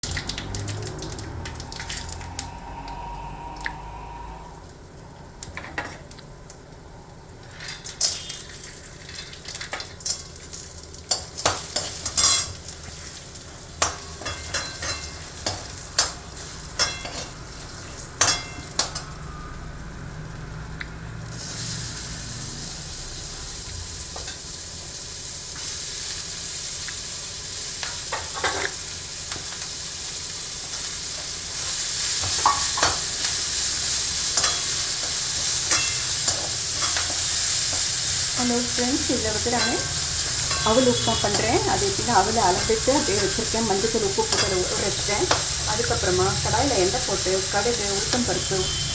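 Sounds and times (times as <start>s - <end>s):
hot oil sizzling: 0.0s - 48.9s.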